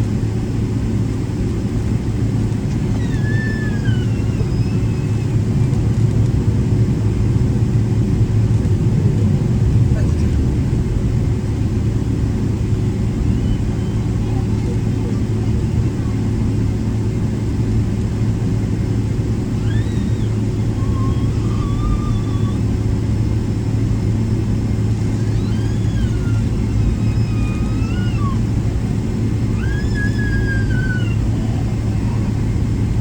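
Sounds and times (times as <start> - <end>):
airplane cabin engine rumble: 0.0 - 33.0
high squealing tone: 2.9 - 5.4, 19.6 - 22.7, 25.0 - 28.5, 29.5 - 32.6.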